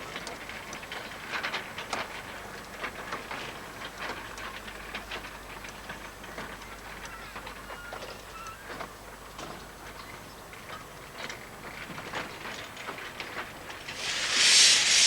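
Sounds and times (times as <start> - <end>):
steam train moving slowly: 13.8 - 15.0
steam hissing: 13.9 - 15.0.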